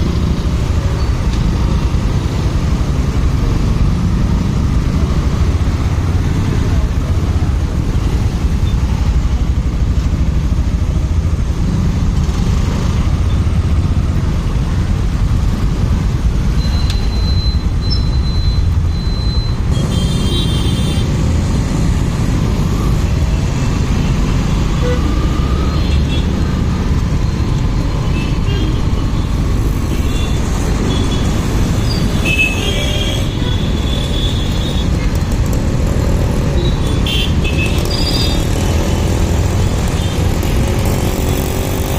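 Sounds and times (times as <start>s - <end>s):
road noise: 0.0s - 41.9s
short high-pitched traffic tones: 16.6s - 19.7s
motorcycle engine: 19.5s - 41.9s.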